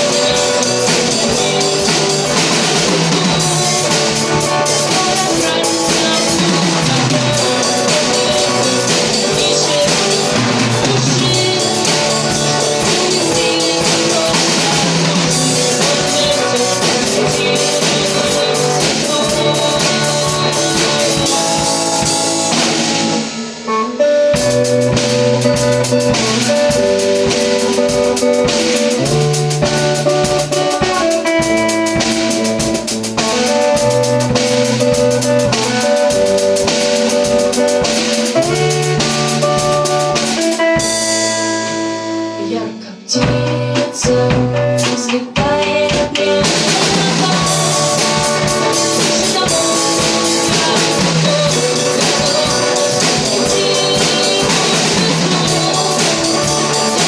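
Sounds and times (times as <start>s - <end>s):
drum kit: 0.0s - 57.0s
guitar melody: 0.0s - 57.0s.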